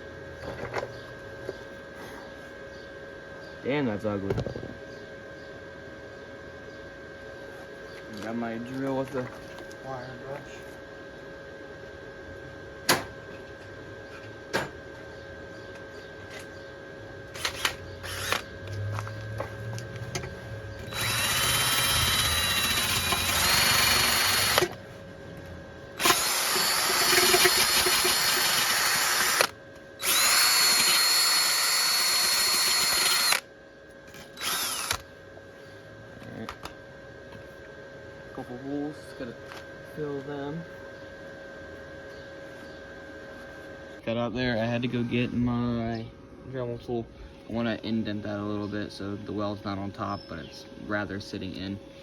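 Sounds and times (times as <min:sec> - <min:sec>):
drill with wire brush whining: 0:17.3 - 0:24.8, 0:26.0 - 0:33.4, 0:34.1 - 0:35.1.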